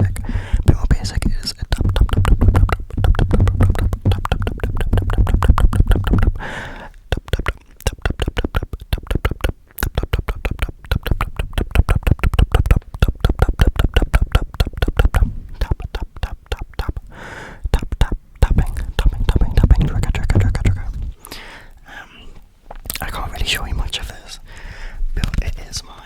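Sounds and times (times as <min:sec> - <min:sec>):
low hum: 0:00.0 - 0:17.0
fast tapping on microphone: 0:00.0 - 0:21.2, 0:25.2 - 0:25.7.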